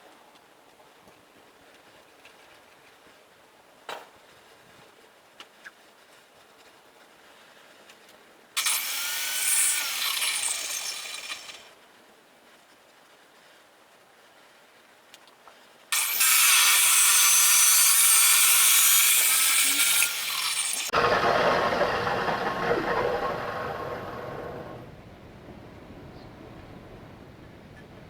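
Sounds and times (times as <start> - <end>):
power tool cutting metal: 8.6 - 11.7, 15.9 - 24.8.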